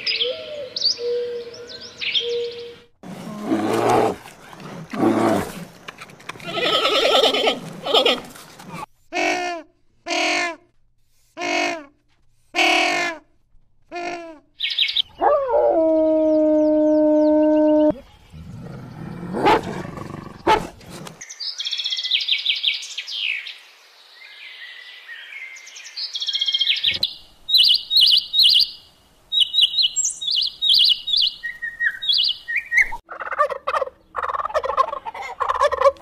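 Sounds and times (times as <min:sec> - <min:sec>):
birds chirping: 0:00.0 - 0:08.8, 0:14.6 - 0:23.4, 0:24.2 - 0:35.8
wolf howling: 0:15.2 - 0:18.0
turkey gobbling: 0:33.1 - 0:36.0.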